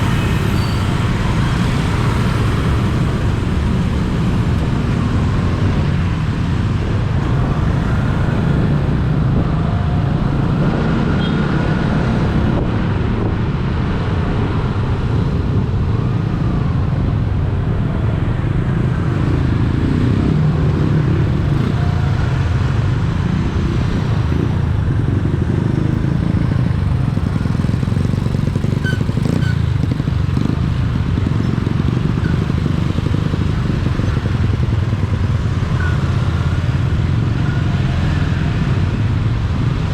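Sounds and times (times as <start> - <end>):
vehicle engines running: 0.0 - 39.9
wind rumble on microphone: 1.2 - 35.6.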